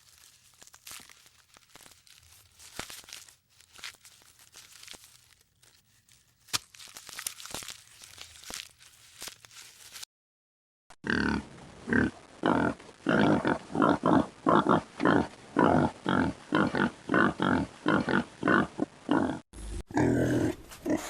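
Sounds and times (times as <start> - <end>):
pig grunting: 11.0 - 21.0.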